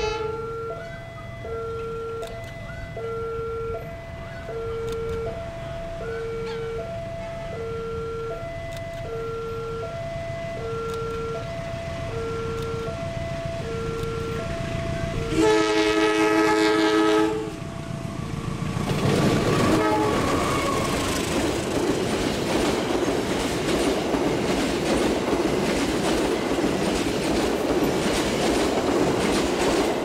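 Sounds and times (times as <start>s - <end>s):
locomotive horn: 0.0s - 1.0s, 1.7s - 8.2s, 13.6s - 17.6s, 19.4s - 21.2s
train coaches rumbling past: 0.0s - 30.0s
wheels clickety-clack: 18.6s - 30.0s.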